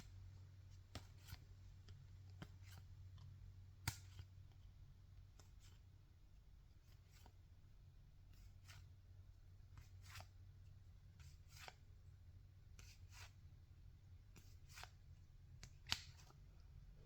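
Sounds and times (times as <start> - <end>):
low steady hum: 0.0 - 17.0
trading cards swishing off a stack: 8.4 - 8.8, 14.4 - 15.0, 15.7 - 16.4
card flick: 15.6 - 16.3.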